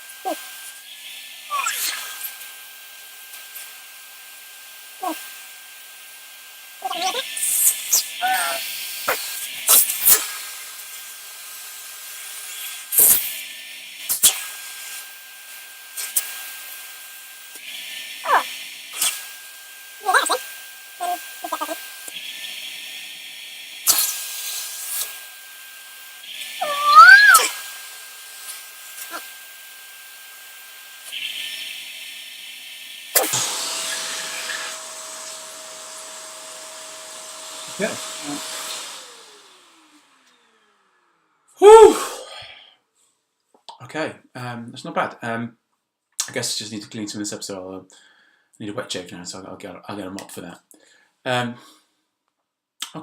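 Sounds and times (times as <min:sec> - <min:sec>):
vacuum cleaner whine: 0:00.0 - 0:42.2
nozzle scraping against beard: 0:06.8 - 0:10.2, 0:21.0 - 0:21.8.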